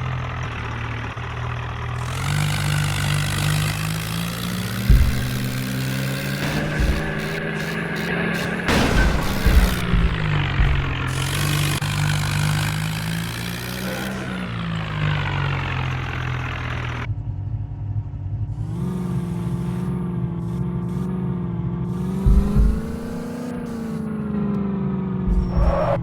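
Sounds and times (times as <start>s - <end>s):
vehicle engine running: 0.0s - 26.0s
short low thumps: 2.0s - 13.5s, 22.0s - 24.2s, 25.3s - 26.0s.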